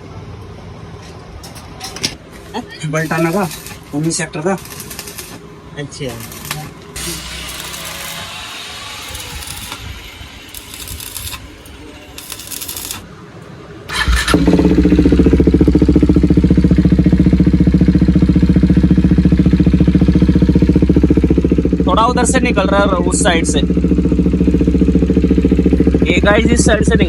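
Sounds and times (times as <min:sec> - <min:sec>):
hissing: 0:06.2 - 0:13.1
motorcycle engine idling: 0:13.9 - 0:27.0.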